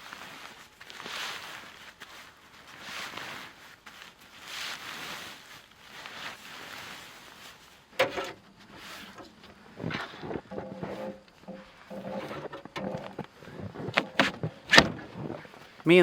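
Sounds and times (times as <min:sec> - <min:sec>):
footsteps crunching in snow: 0:00.0 - 0:07.9.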